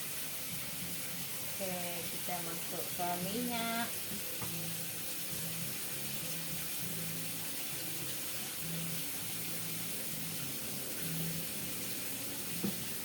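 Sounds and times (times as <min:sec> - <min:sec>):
oil hissing in a hot pan: 0:00.0 - 0:13.0.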